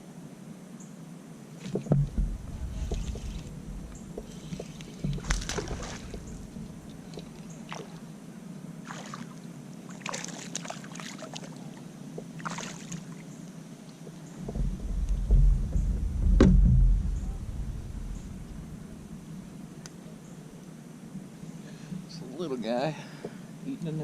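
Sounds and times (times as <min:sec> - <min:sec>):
water splashing around kayak: 0:01.6 - 0:08.1, 0:08.8 - 0:19.7.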